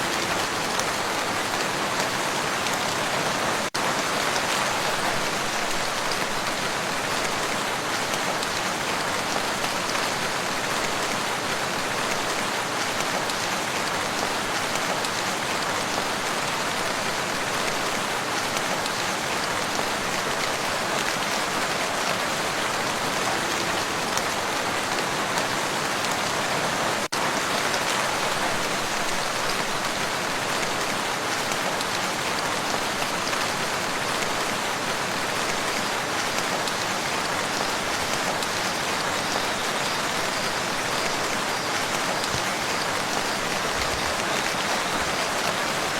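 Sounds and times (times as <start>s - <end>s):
rain falling on a lake: 0.0s - 45.9s.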